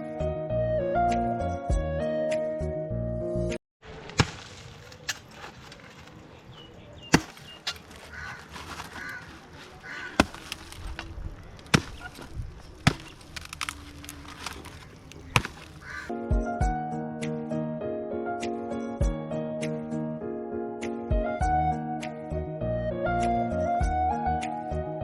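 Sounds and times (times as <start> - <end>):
sharp chopping strikes: 3.9 - 5.8, 7.1 - 9.1, 9.8 - 16.1
crow cawing: 7.7 - 10.6, 14.8 - 16.1.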